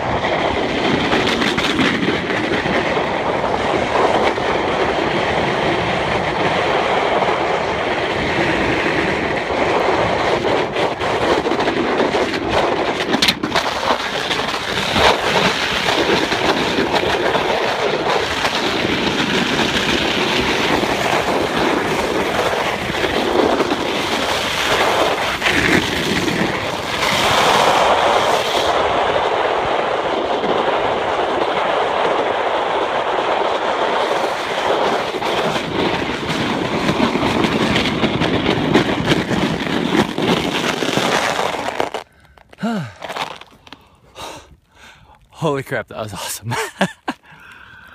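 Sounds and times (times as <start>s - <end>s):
board scraping over ice: 8.4s - 28.8s, 33.8s - 44.4s.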